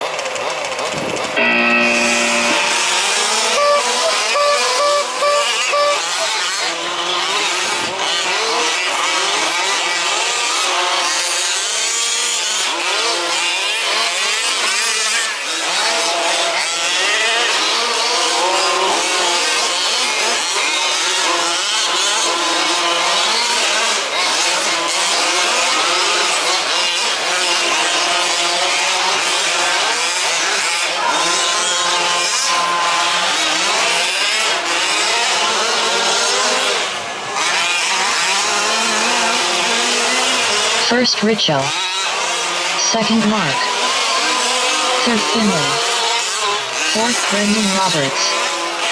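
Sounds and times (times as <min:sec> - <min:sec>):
small two-stroke engines revving: 0:00.0 - 0:48.9.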